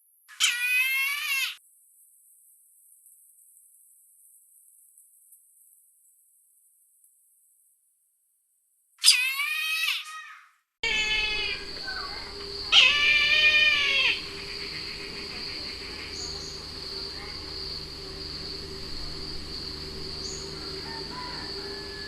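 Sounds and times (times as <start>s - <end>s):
high insect buzz: 10.8s - 22.0s.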